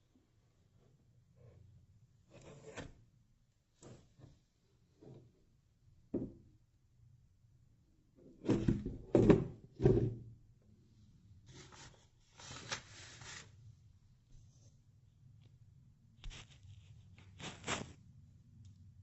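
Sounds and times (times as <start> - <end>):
rubbing and scraping: 16.2 - 18.0.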